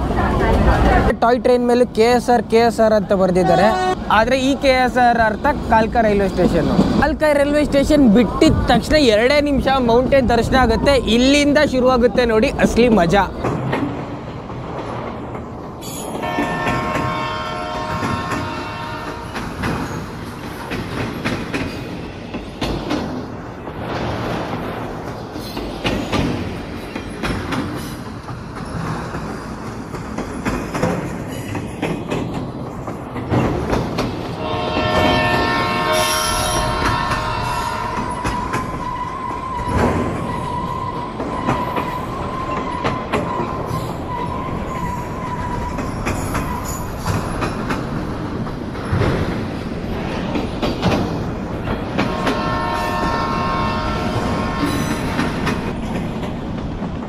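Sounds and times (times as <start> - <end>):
train wheels knocking over rails: 14.8 - 38.9, 39.6 - 40.6, 45.4 - 57.0
high wheel squeal: 35.3 - 47.1.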